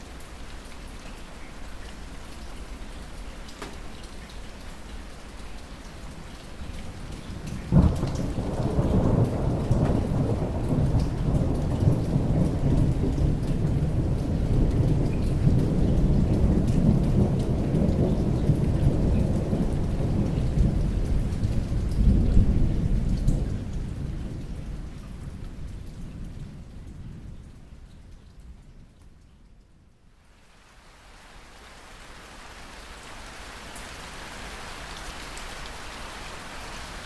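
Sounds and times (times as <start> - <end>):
steady rain: 0.0 - 37.0
thunder crack and rumble: 6.9 - 28.9.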